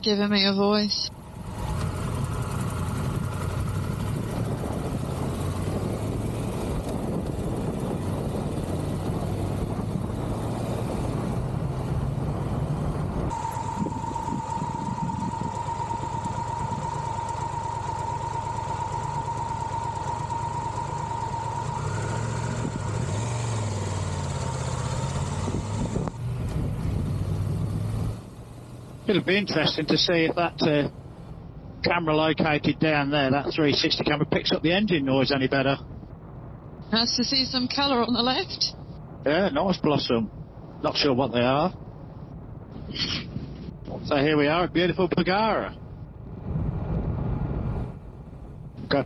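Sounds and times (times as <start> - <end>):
steady high whine: 0.0 - 32.2
road and wind noise: 0.0 - 49.0
motorcycle engine running: 1.0 - 31.4.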